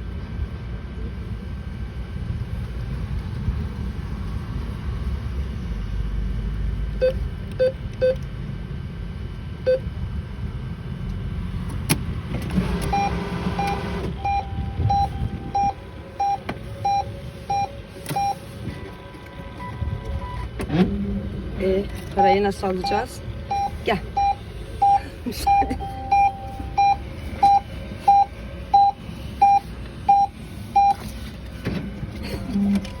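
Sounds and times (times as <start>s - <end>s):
traffic rumble: 0.0s - 33.0s
atm keypad beeping: 7.0s - 8.2s, 9.7s - 9.9s, 12.6s - 21.0s, 21.6s - 31.1s
repeating alert beep: 22.8s - 30.9s.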